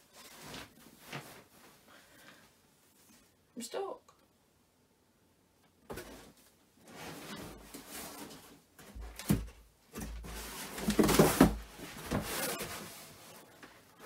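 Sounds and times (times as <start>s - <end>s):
mattress scraping and rustling: 6.0s - 8.6s.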